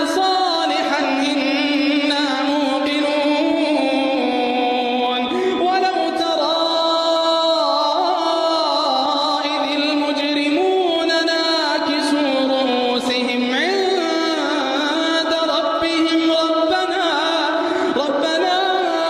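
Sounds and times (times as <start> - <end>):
person chanting melodically: 0.0 - 19.0.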